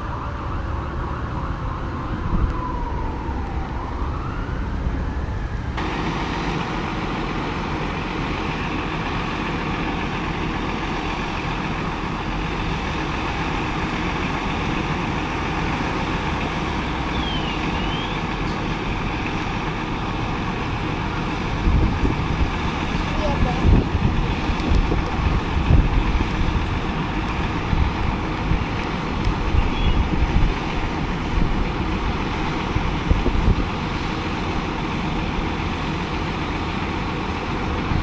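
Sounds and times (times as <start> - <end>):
gliding siren tone: 0.0 - 5.8, 16.6 - 18.3
fire engine driving: 0.0 - 38.0.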